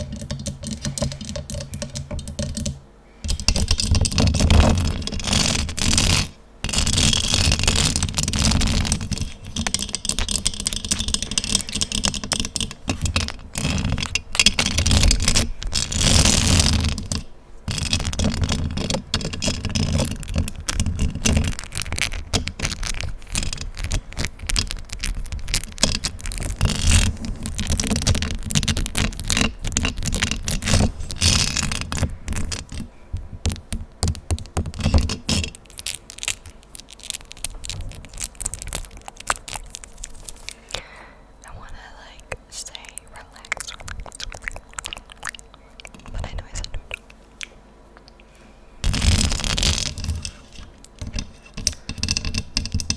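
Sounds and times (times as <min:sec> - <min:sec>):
scratching and rubbing on a microphone: 0:03.3 - 0:40.5, 0:48.8 - 0:52.9.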